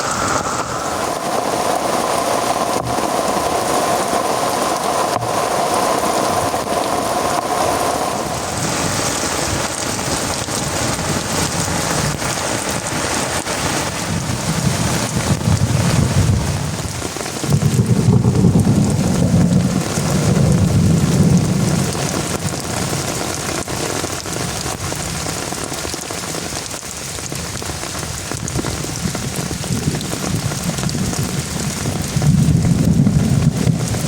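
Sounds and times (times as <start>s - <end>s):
low thunder rumble: 0.0s - 12.8s, 14.0s - 23.0s, 29.0s - 34.0s
heavy rain falling: 0.0s - 34.0s.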